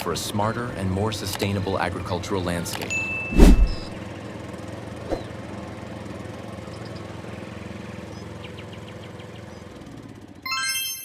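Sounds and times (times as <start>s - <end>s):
engine running: 0.1s - 10.4s.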